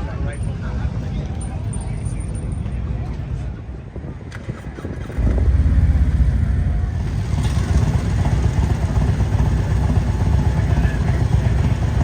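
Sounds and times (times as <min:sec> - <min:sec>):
motorcycle engine starting and running: 0:04.3 - 0:12.0.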